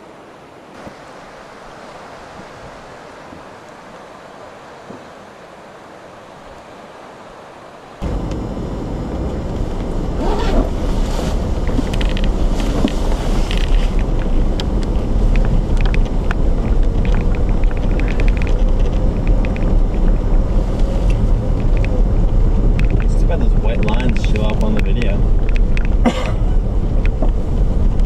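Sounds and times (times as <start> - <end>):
tyre and road rumble: 8.0 - 28.0
light clicks and rattles: 11.6 - 28.0.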